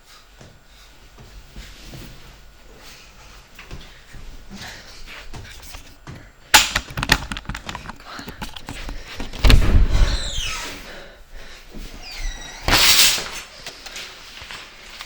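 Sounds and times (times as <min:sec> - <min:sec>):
household knocks and rattles: 0:06.6 - 0:10.4
heavy thump: 0:09.2 - 0:10.7
short falling creak: 0:09.3 - 0:10.9, 0:12.0 - 0:13.4.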